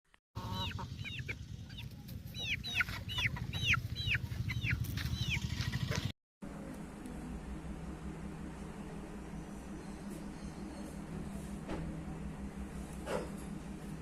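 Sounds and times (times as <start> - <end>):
chickens calling: 0.4 - 6.1
low steady rumble: 0.4 - 10.0.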